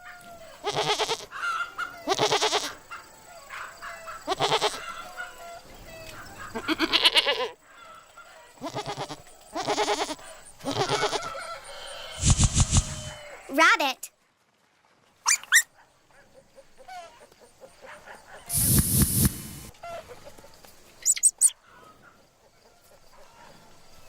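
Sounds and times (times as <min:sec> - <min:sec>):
goats bleating: 0:00.6 - 0:01.3, 0:02.1 - 0:02.8, 0:04.3 - 0:04.8, 0:06.6 - 0:07.6, 0:08.6 - 0:11.3.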